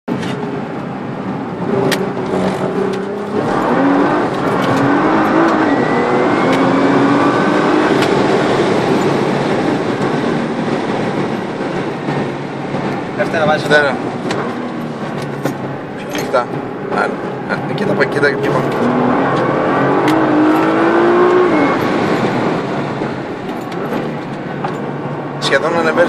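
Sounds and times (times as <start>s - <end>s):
car engine accelerating: 0.1s - 26.0s.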